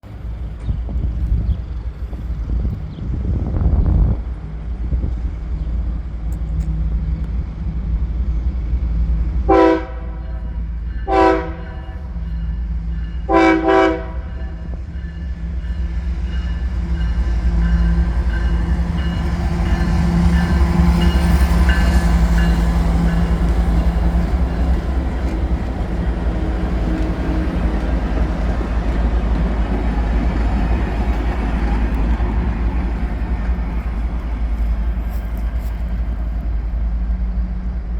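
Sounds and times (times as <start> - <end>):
train rumbling past: 0.0 - 37.9
locomotive air horn blasts: 9.5 - 10.4, 11.1 - 12.0, 13.3 - 14.6.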